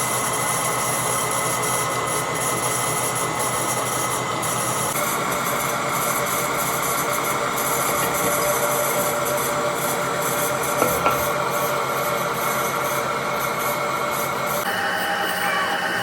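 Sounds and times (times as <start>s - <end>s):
metal rasping: 6.1s - 12.1s.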